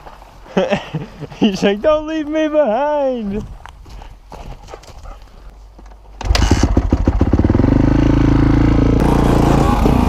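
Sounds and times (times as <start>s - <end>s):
dirt bike engine starting and running: 6.2s - 10.0s.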